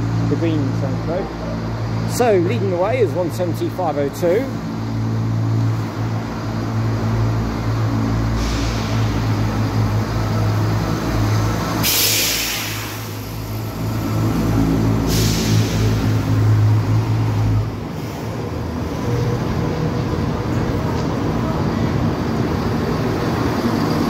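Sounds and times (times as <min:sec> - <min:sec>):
diesel train engines droning: 0:00.0 - 0:24.0
loud hiss: 0:08.4 - 0:09.4, 0:11.8 - 0:13.8, 0:14.9 - 0:16.2.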